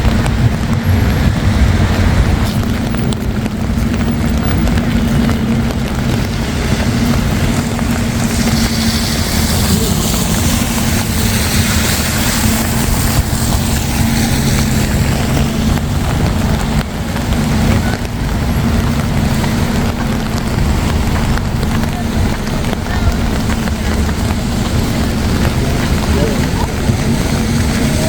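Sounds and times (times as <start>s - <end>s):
traffic engine hum: 0.0s - 28.0s
tyre hiss on wet road: 6.0s - 28.0s.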